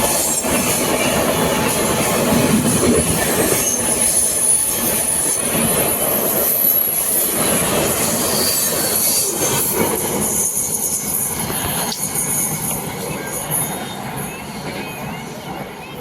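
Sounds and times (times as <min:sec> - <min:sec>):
train wheels rumbling on rails: 0:00.0 - 0:16.0
high-pitched wheel squeal: 0:08.1 - 0:09.7.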